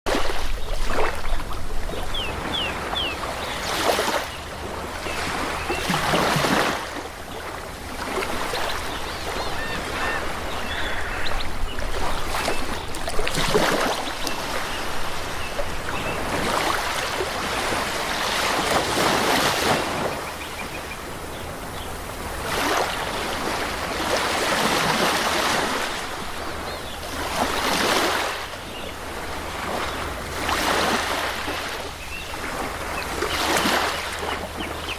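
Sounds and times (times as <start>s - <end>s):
ocean waves washing onto beach: 0.1s - 34.9s.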